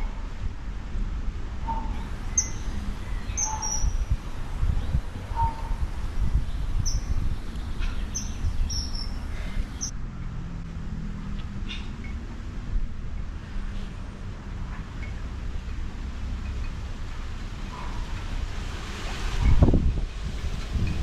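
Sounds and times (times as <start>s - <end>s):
steady low rumble: 0.0s - 21.0s
bird high chirps: 1.7s - 4.2s, 6.5s - 9.9s.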